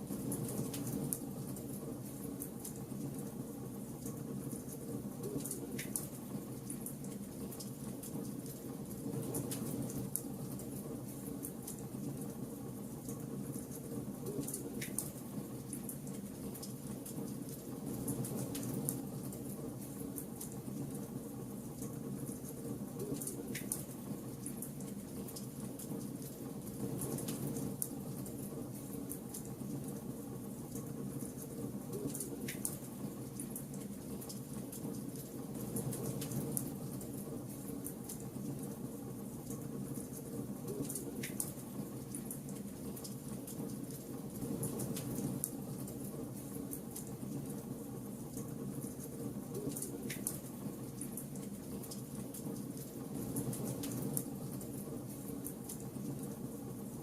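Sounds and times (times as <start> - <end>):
wood fire crackling and popping: 39.4 - 47.6, 48.3 - 56.4.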